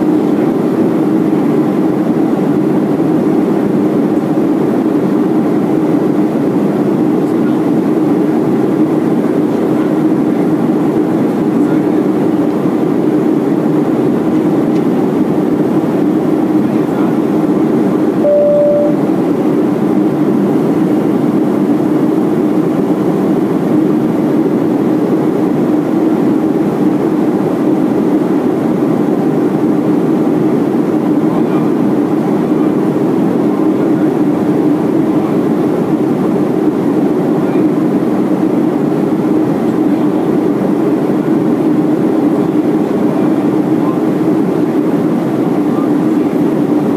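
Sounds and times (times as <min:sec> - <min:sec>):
airplane cabin engine noise: 0:00.0 - 0:46.9
brief single tone: 0:18.2 - 0:19.2.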